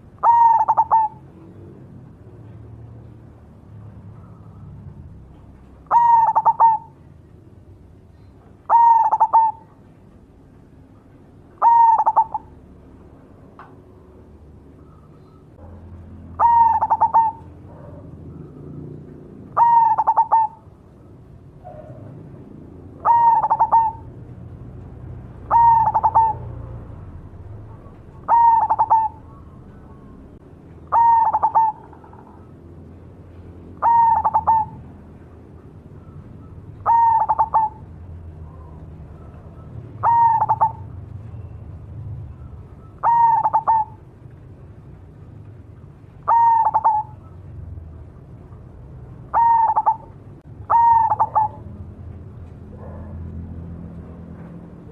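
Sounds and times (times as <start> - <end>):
dove cooing: 0.0 - 2.6, 5.8 - 7.1, 8.2 - 9.9, 11.5 - 12.5, 16.3 - 20.8, 22.9 - 24.2, 25.4 - 26.8, 27.7 - 32.6, 33.8 - 34.9, 36.0 - 41.5, 42.4 - 44.1, 46.2 - 47.5, 49.2 - 51.8.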